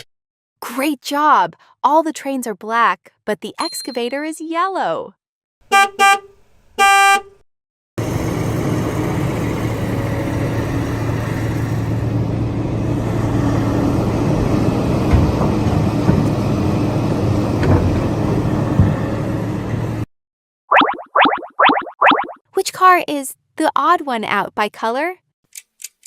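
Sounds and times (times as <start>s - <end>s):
large vehicle engine humming: 8.0s - 20.1s
short knocks and clunks: 15.1s - 16.4s.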